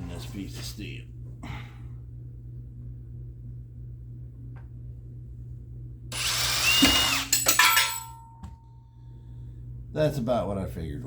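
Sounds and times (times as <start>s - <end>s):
steady low hum: 0.0s - 11.0s
drill bit grinding into steel: 6.1s - 8.0s.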